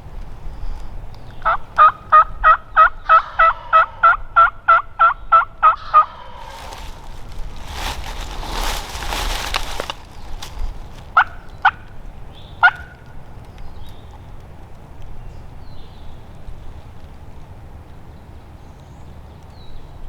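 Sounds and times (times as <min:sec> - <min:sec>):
rough rustling with clicks: 0:06.4 - 0:15.1.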